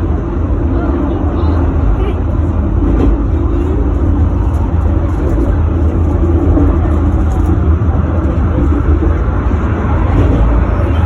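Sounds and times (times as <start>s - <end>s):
tram rumbling: 0.0s - 11.0s.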